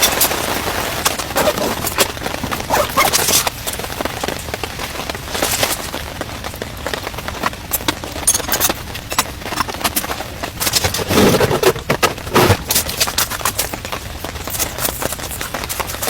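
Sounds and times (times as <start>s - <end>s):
heavy rain pelting down: 0.0s - 16.0s.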